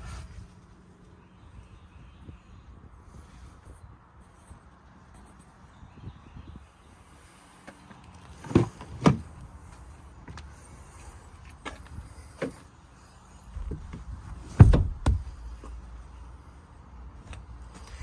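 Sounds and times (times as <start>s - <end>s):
truck doors shutting: 13.6s - 15.8s.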